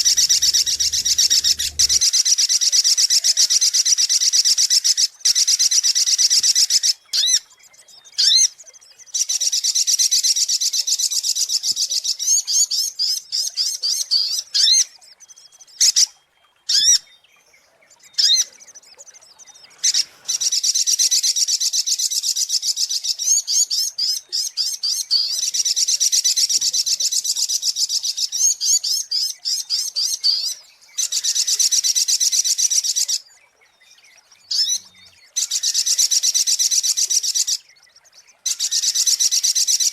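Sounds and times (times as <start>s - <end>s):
bird rapid high chirps: 0.0s - 2.1s.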